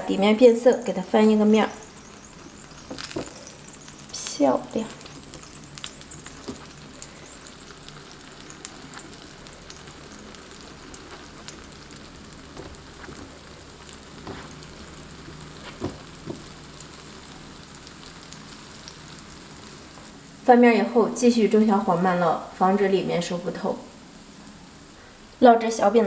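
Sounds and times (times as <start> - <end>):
rice cakes sizzling in oil: 0.0 - 26.0
oil popping: 1.8 - 20.2.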